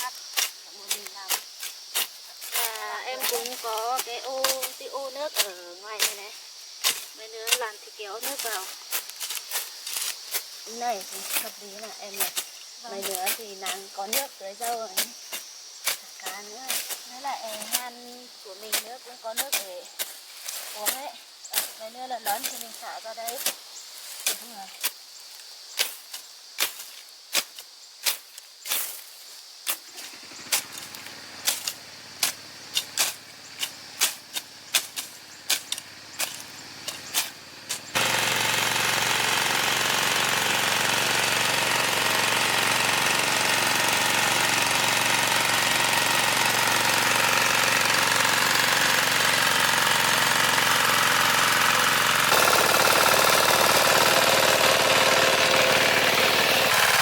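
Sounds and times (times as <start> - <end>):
machete chopping through grass: 0.3 - 17.9, 18.7 - 38.0
farm machine engine running: 30.0 - 57.0.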